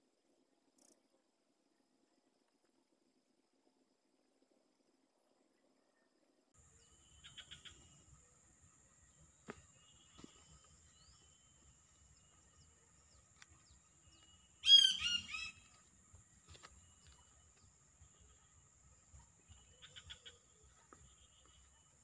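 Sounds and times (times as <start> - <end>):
bird harsh call: 6.9 - 8.0, 14.1 - 15.8.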